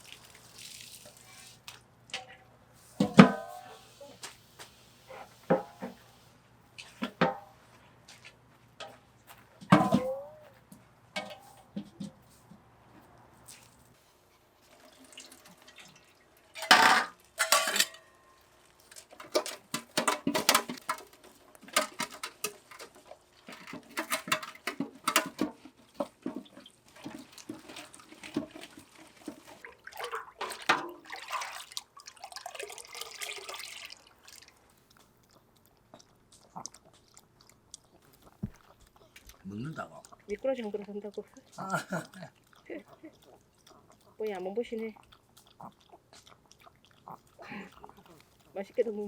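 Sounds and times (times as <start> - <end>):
running water: 0.0 - 1.8, 14.5 - 35.4
dishes and utensils clinking: 3.0 - 3.8, 9.7 - 10.4, 11.2 - 11.9, 16.6 - 18.4, 19.1 - 25.6
water splashing: 25.1 - 35.3.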